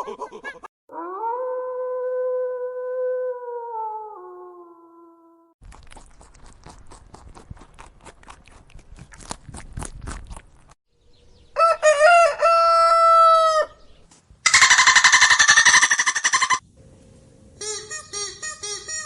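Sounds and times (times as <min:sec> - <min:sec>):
rooster crowing: 0:11.6 - 0:13.8, 0:14.5 - 0:16.6
rapidly pulsing animal call: 0:14.5 - 0:16.6.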